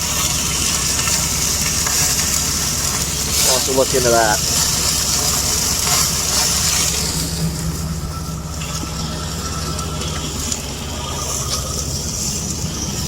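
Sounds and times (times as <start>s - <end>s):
hiss: 0.0s - 7.8s
faint crackles: 0.0s - 13.0s
low machine drone: 0.0s - 13.0s.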